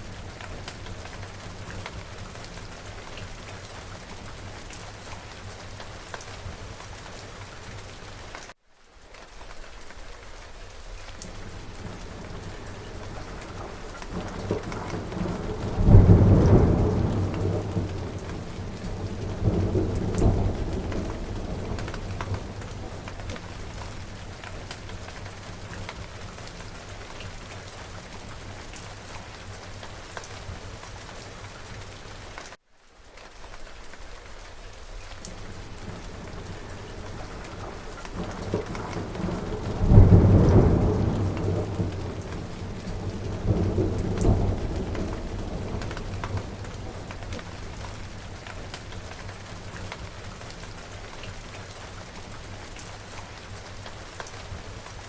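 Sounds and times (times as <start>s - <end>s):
heavy rain: 0.0s - 55.0s
raindrops pattering: 0.0s - 55.0s
rolling thunder: 11.8s - 24.0s, 35.5s - 47.8s.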